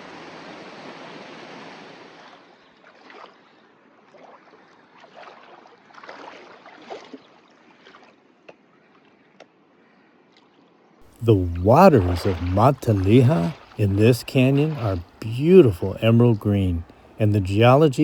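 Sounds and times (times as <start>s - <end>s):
water splashing and sloshing: 2.2s - 3.4s, 4.0s - 8.2s, 11.2s - 18.0s
creek running water: 11.1s - 18.0s.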